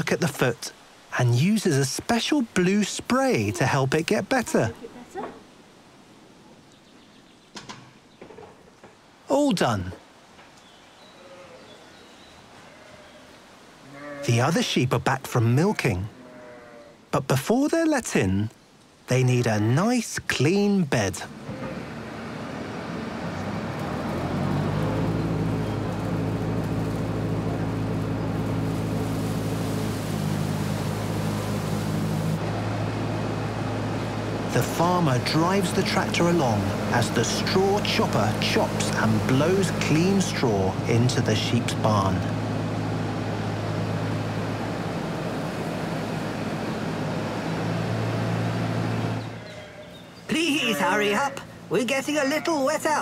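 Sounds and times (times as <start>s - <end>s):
tractor engine with straw chopper: 21.3s - 49.5s.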